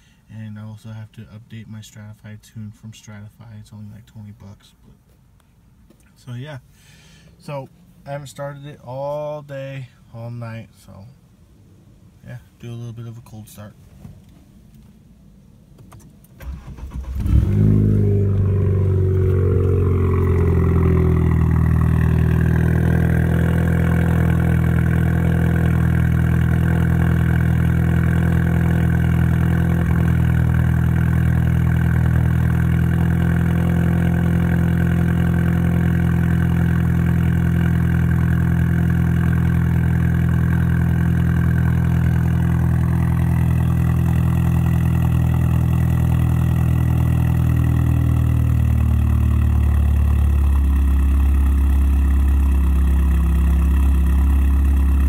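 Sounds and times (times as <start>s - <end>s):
car engine cranking: 15.8s - 55.0s
car engine idling: 16.3s - 55.0s.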